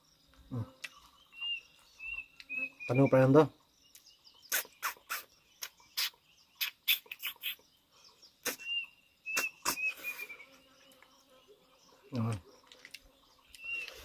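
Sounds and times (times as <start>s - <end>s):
mouth chewing and crunching food: 3.9s - 7.6s, 12.6s - 14.0s.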